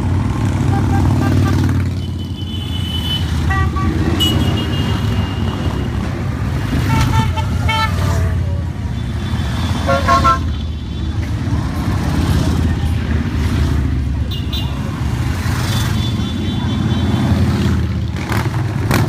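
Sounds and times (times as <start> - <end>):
horns beeping: 0.4 - 11.4, 14.2 - 18.2
motorcycles riding past: 11.4 - 19.0.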